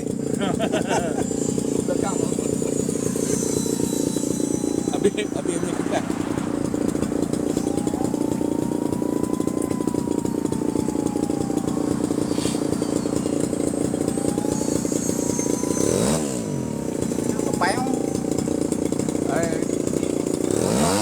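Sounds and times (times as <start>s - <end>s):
model aircraft engine running: 0.0s - 21.0s
faint whine rising and falling: 1.6s - 18.5s.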